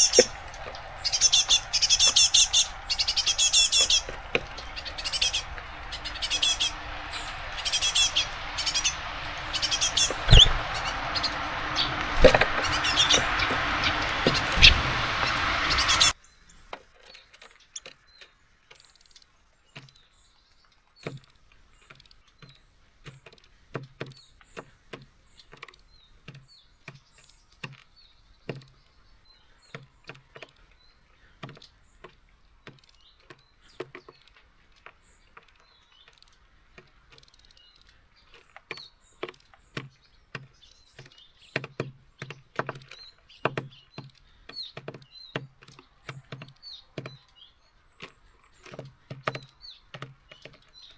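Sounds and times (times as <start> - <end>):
birds tapping on feeder: 0.0 - 16.1, 38.8 - 50.8
faint high bird chirps: 0.0 - 16.2.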